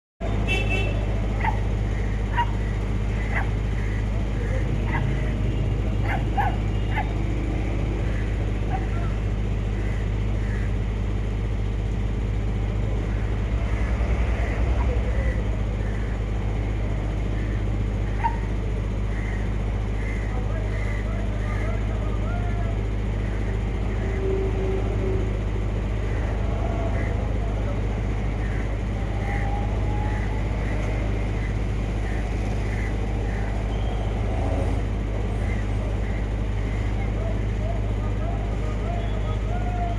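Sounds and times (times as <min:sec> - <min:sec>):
low motor-like drone: 0:00.2 - 0:39.9
high animal cries: 0:01.4 - 0:05.4, 0:06.0 - 0:07.2.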